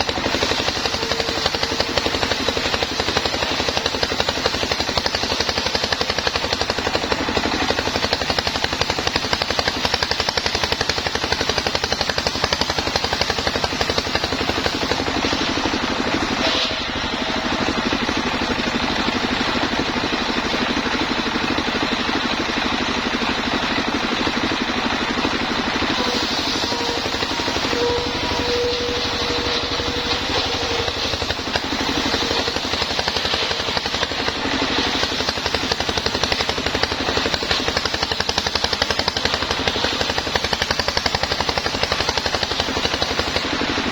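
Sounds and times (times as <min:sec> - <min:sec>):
engine-driven sawmill running: 0:00.0 - 0:43.9
brief high squeal: 0:16.3 - 0:17.6, 0:26.0 - 0:31.3.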